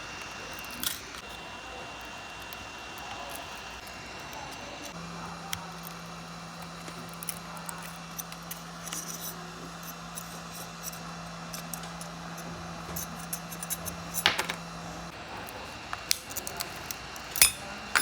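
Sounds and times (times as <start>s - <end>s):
low electrical hum: 0.0s - 18.0s
metal tools clicking on phone parts: 16.0s - 18.0s.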